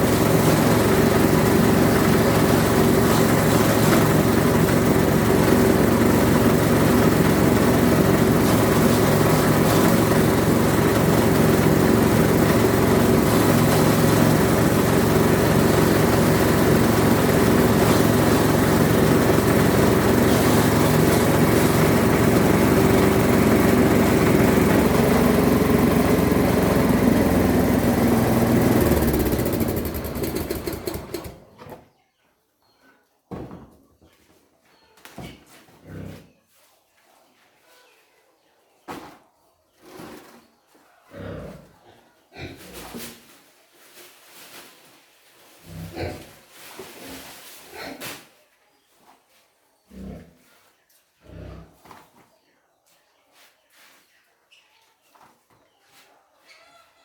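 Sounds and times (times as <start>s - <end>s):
small engine running: 0.0s - 31.6s.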